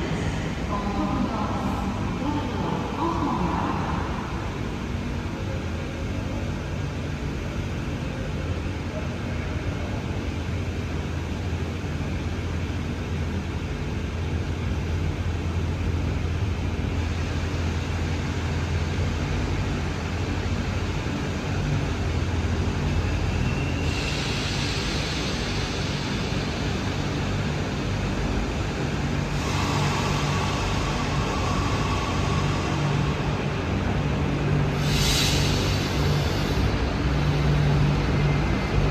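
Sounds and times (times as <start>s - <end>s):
train humming: 0.0s - 38.9s
hissing noise: 34.7s - 38.9s.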